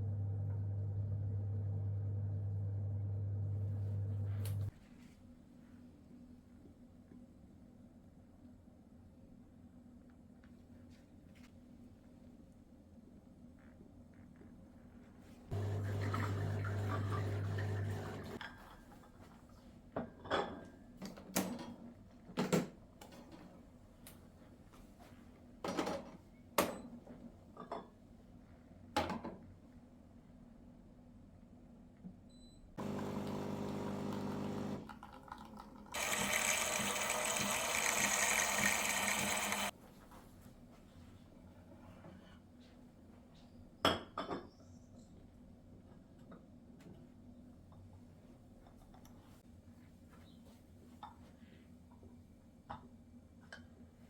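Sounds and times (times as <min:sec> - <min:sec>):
hissing whir: 0:36.0 - 0:39.7
small electric motor buzzing: 0:36.0 - 0:39.7.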